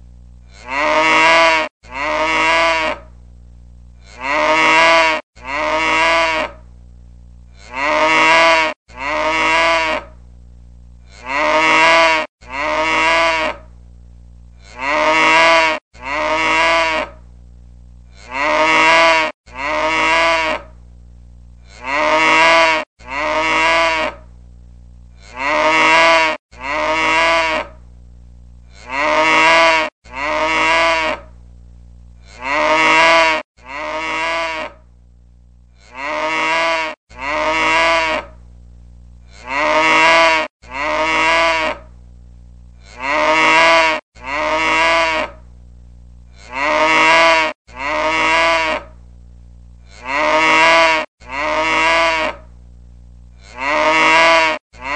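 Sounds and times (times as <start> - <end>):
low hum: 0.0 - 0.7, 3.0 - 4.2, 6.5 - 7.7, 10.0 - 11.2, 13.6 - 14.8, 17.1 - 18.3, 20.6 - 21.8, 24.2 - 25.3, 27.7 - 28.9, 31.2 - 32.4, 34.8 - 35.9, 38.3 - 39.4, 41.8 - 43.0, 45.3 - 46.5, 48.9 - 50.0, 52.4 - 53.5
cow mooing: 14.6 - 17.1, 21.7 - 24.2, 25.2 - 27.7, 28.7 - 31.2, 32.2 - 34.8, 35.8 - 38.3, 39.3 - 41.8, 42.8 - 45.4, 46.4 - 48.9, 49.9 - 52.4, 53.4 - 54.9.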